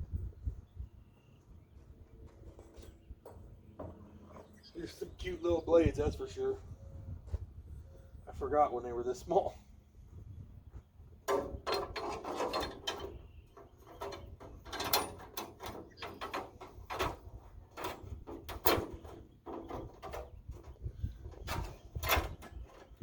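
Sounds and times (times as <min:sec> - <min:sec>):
metal clicks and clanks: 0:11.2 - 0:23.0.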